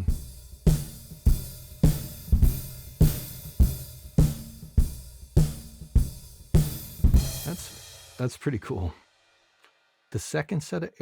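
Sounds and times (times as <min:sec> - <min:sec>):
drum kit playing a groove: 0:00.0 - 0:08.6
cymbals and hi-hat ringing: 0:00.0 - 0:08.8.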